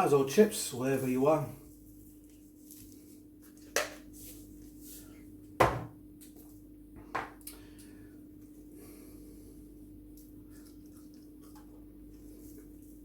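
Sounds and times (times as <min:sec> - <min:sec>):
faint steady hum: 0:00.0 - 0:13.0
knocks on a table: 0:05.6 - 0:06.0.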